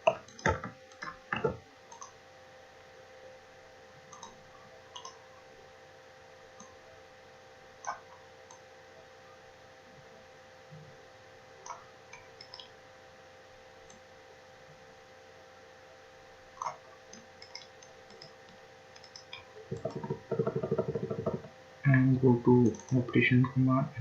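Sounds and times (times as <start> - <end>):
faint electrical hum: 0.0 - 24.0
computer mouse clicking: 0.1 - 2.2, 4.1 - 5.2, 7.8 - 8.6, 11.6 - 12.7, 13.8 - 14.0, 16.6 - 21.5, 22.6 - 23.1
fast ticks: 16.6 - 21.5.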